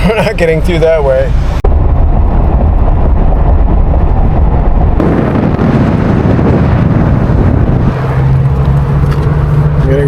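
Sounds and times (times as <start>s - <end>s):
road rumble: 0.0s - 10.0s
wind buffeting microphone: 1.3s - 10.0s.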